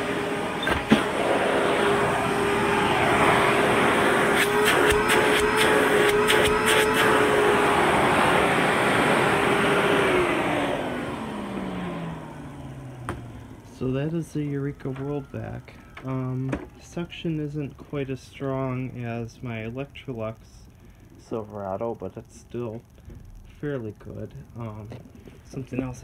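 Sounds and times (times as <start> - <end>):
vacuum cleaner motor whining: 0.0 - 19.2.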